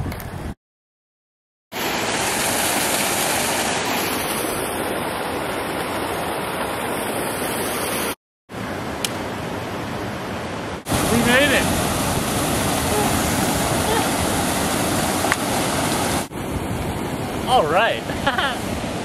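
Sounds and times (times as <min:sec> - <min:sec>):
waterfall rushing: 0:10.6 - 0:16.3.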